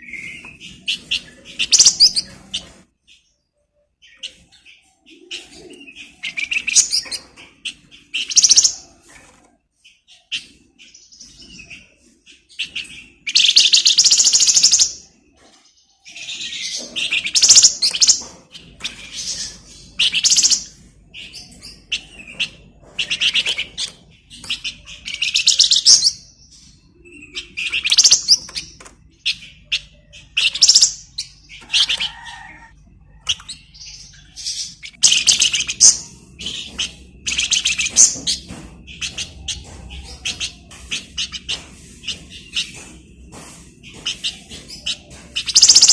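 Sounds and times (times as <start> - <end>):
songbird trilling and chattering: 0.1 - 2.7, 12.8 - 15.0, 16.2 - 20.8, 21.4 - 32.1, 33.2 - 45.9.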